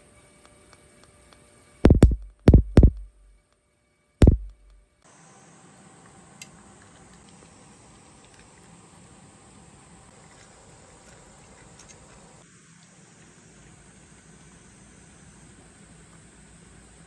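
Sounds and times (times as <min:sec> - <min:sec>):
sharp thuds: 0:01.9 - 0:03.3, 0:04.2 - 0:04.8
insects: 0:05.1 - 0:17.0.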